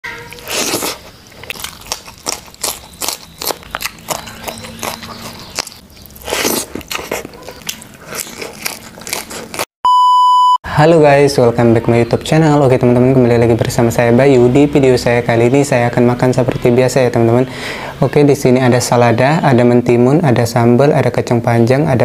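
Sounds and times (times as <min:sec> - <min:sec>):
crunching and chewing vegetables: 0:00.1 - 0:09.7
electronic beep: 0:09.9 - 0:10.6.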